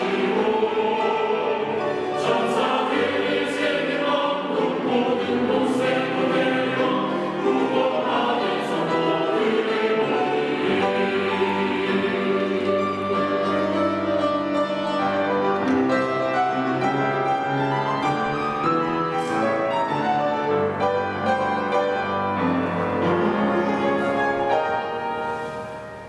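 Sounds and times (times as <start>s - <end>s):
choir singing: 0.0s - 20.1s
piano playing: 0.0s - 26.0s.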